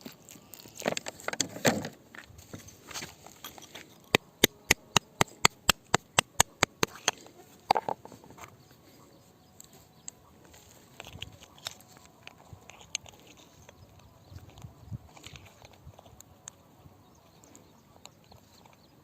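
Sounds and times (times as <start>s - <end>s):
hammer tapping on rock: 4.1s - 7.2s.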